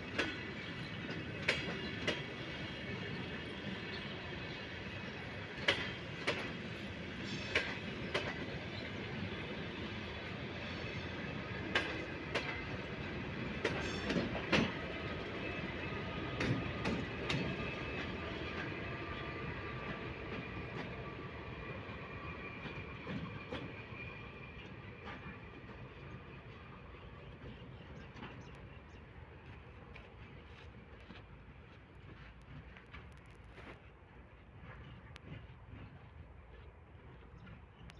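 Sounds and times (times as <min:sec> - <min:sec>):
train wheels clacking over rail joints: 0:00.1 - 0:04.0, 0:05.3 - 0:21.2
wheels squealing on rail: 0:07.0 - 0:11.9, 0:13.5 - 0:15.0.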